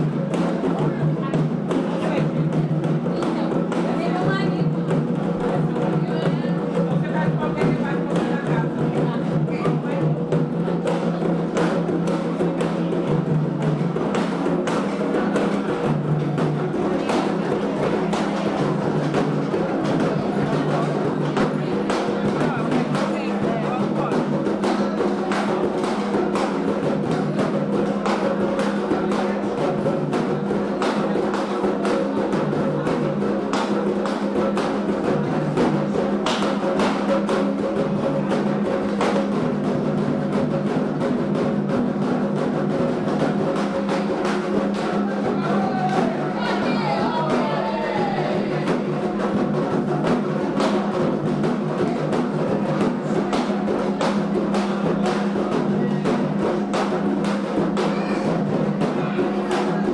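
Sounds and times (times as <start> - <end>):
dense drumming: 0.0 - 59.9
sustained voices: 44.2 - 56.6.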